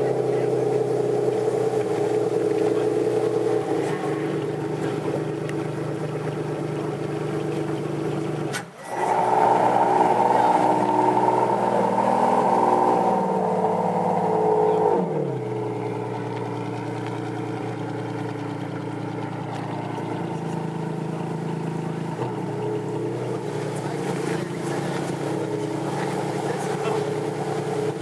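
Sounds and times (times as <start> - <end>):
car engine revving then idling: 0.0 - 28.0.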